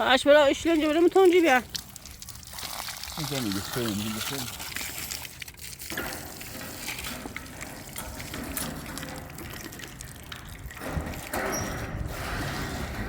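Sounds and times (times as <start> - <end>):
water running: 0.0 - 12.1.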